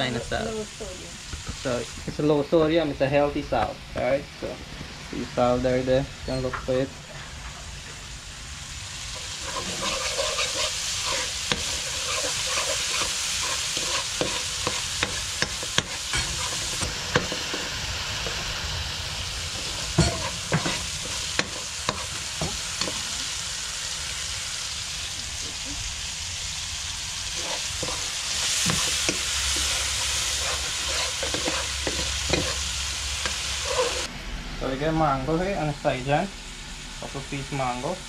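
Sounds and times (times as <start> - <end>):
curry base sizzling in pot: 7.1 - 34.1
spoon scraping and knocking pot: 9.2 - 17.6, 20.0 - 23.0, 27.4 - 28.0, 28.6 - 32.6.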